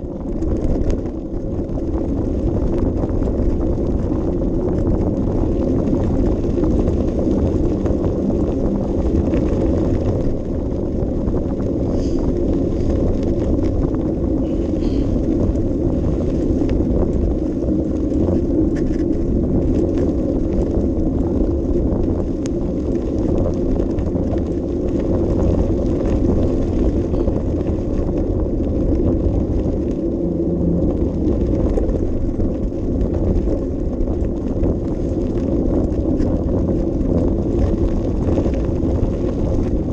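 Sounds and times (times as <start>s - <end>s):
bicycle rolling and rattling: 0.0s - 39.9s
wind rumble on microphone: 0.0s - 39.9s.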